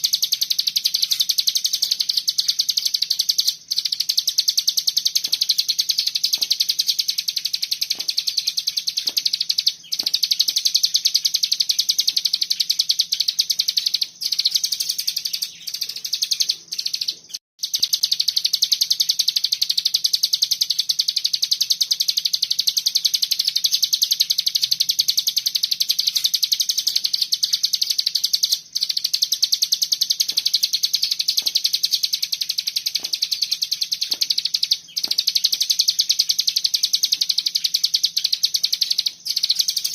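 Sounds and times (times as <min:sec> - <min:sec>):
songbird rapid high trill: 0:00.0 - 0:39.9.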